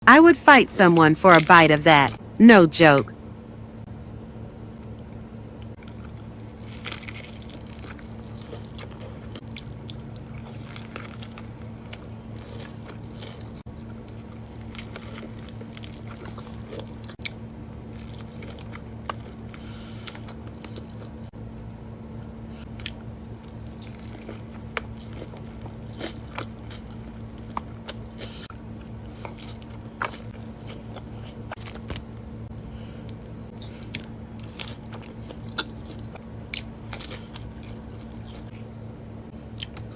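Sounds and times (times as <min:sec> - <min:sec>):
crunchy bites and chewing: 0:33.6 - 0:38.4.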